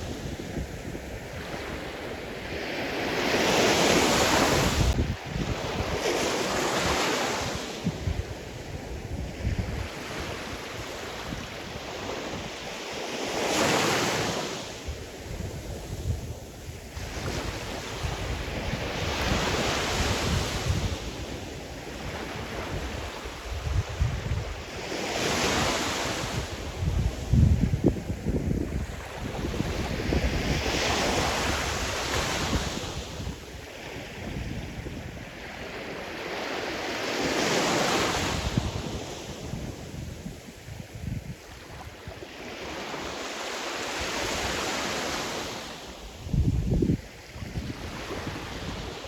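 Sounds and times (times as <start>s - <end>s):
wind buffeting microphone: 0.0s - 12.6s, 14.9s - 35.5s, 46.2s - 49.0s
sea surf breaking on shore: 0.0s - 49.0s.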